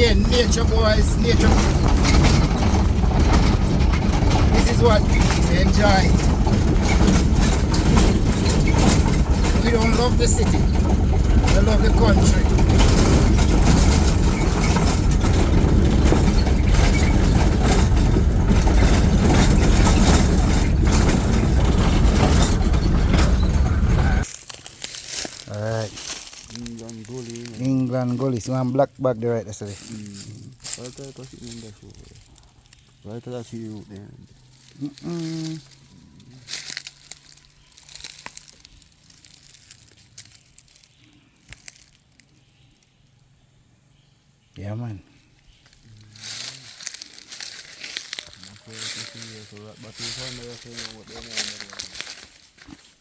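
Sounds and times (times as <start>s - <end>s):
vehicle road and wind noise: 0.0s - 24.3s
faint rustling and crackling: 0.0s - 43.0s, 45.3s - 53.0s.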